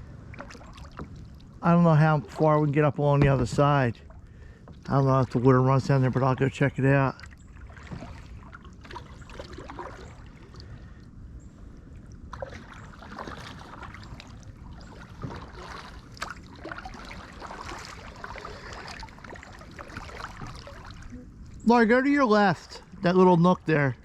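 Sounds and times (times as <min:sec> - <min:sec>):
kayak paddle strokes in water: 0:00.0 - 0:11.0, 0:11.6 - 0:21.8
water dripping off paddle: 0:12.2 - 0:21.7.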